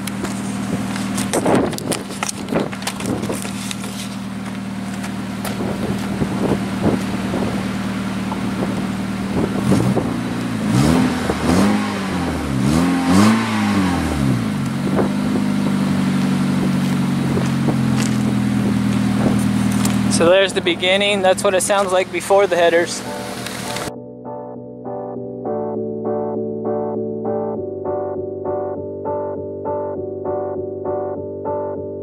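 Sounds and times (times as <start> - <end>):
car engine idling and revving: 0.0 - 23.9.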